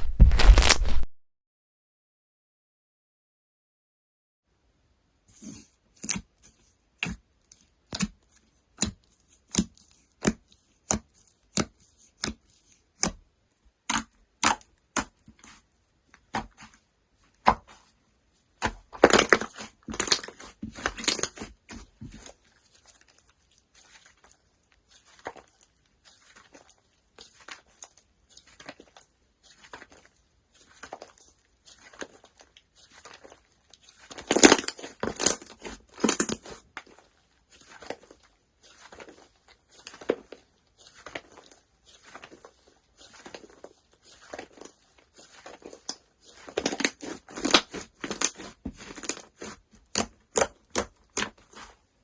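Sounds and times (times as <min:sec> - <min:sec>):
slime popping and crackling: 0:00.1 - 0:01.0, 0:13.8 - 0:15.6, 0:18.6 - 0:51.8.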